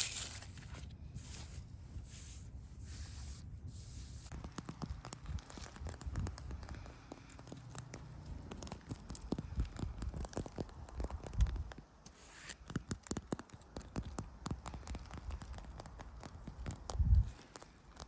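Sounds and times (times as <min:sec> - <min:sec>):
dry forest debris crackling: 0:00.0 - 0:01.0.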